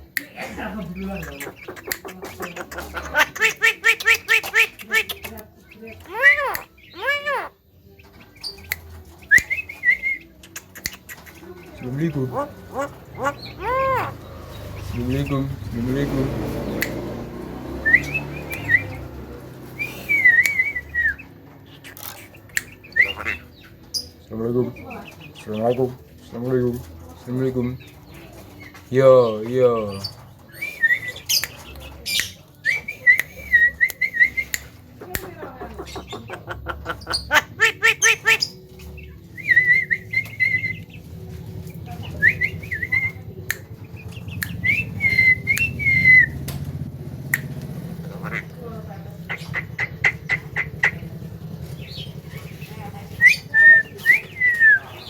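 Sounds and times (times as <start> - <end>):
myna calling: 0.1 - 26.0, 29.9 - 46.4, 47.3 - 55.0
bird clicks: 1.2 - 7.2, 8.0 - 11.7, 16.3 - 24.2, 31.0 - 48.5
sharp clicks: 8.1 - 11.4, 16.3 - 19.7.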